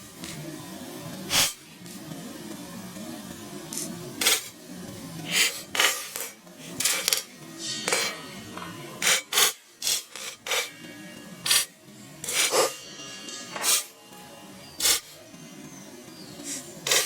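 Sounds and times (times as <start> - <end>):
popcorn scraping in a pan: 1.3 - 1.7, 3.7 - 4.6, 5.2 - 14.0, 14.6 - 15.3, 16.2 - 17.0.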